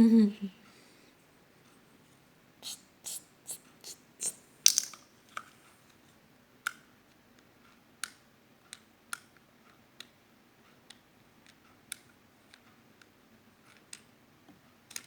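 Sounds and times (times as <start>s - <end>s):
plastic toy pieces clicking: 4.2s - 5.5s.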